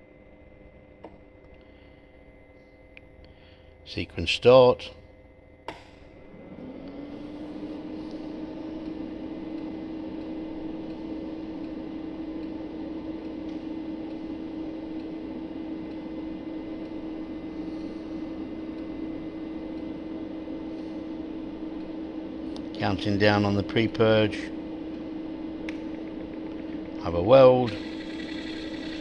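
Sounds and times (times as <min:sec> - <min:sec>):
welding machine hum: 0:05.7 - 0:29.0.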